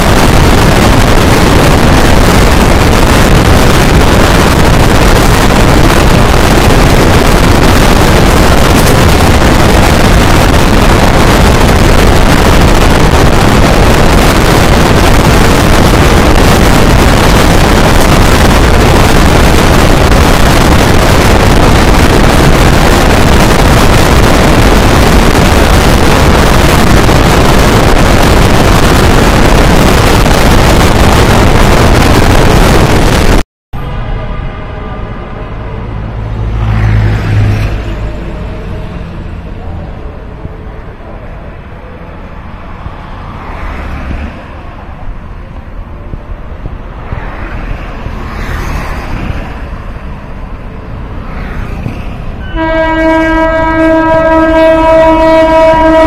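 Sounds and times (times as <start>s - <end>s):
wind buffeting the microphone: 0.0s - 33.4s
rumble of train wheels: 0.0s - 56.0s.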